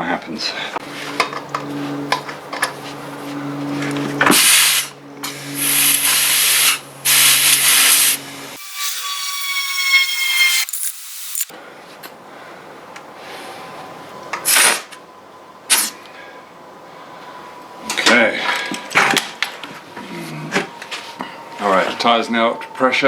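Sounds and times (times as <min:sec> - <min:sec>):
air compressor humming: 0:00.7 - 0:08.7
air hissing into tyre: 0:04.2 - 0:08.6.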